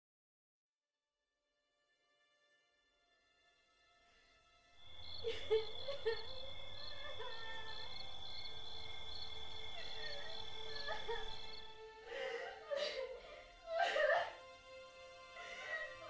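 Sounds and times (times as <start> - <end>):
steady high insect drone: 3.3 - 16.0
insects chirping: 4.8 - 13.2.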